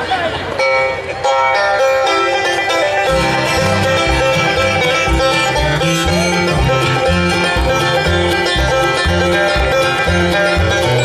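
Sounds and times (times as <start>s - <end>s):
banjo picking: 0.5s - 11.0s
guitar picking: 0.6s - 11.0s
bass: 1.4s - 11.0s.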